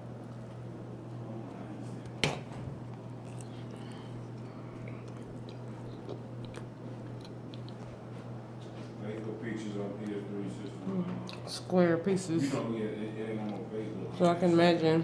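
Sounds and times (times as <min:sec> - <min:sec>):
person chewing muffin: 0:02.9 - 0:09.4, 0:10.9 - 0:11.5.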